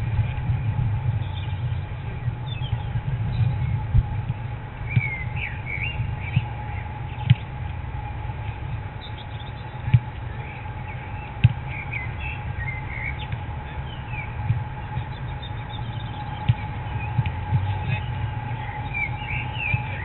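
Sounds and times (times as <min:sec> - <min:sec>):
steady low rumble: 0:00.0 - 0:20.0
small birds chirping: 0:09.0 - 0:20.0.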